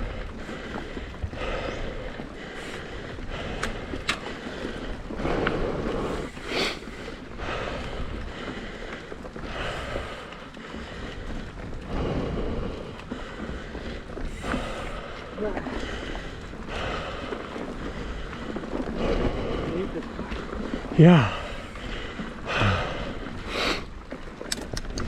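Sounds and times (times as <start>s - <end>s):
bicycle tyre and drivetrain rattle: 0.0s - 25.0s
wind noise on microphone: 21.2s - 25.0s
sharp clicks: 24.5s - 25.0s.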